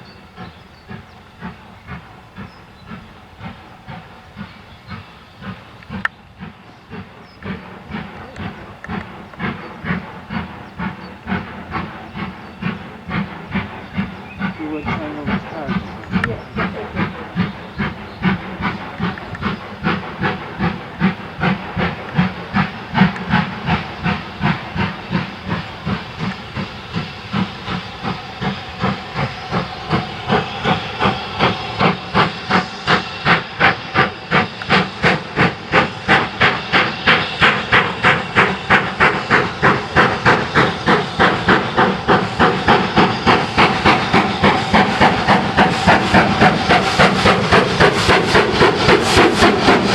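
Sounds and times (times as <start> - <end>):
steam locomotive exhaust beats: 0.0 - 49.9.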